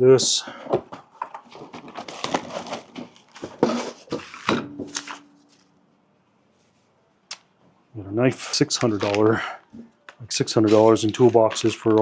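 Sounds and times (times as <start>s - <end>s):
packaging rustling: 0.6s - 5.7s, 10.1s - 12.0s.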